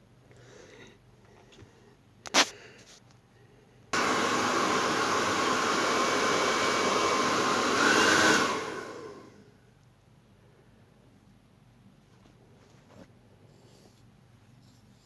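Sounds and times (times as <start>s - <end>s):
hair dryer blowing: 4.0s - 9.4s.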